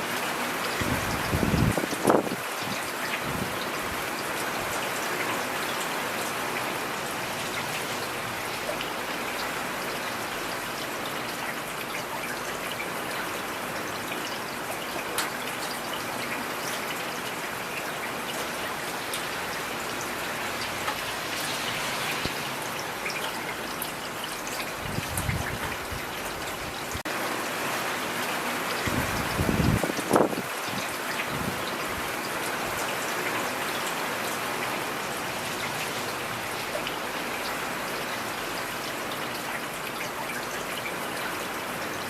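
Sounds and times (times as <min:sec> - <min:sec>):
rain falling: 0:00.0 - 0:42.0.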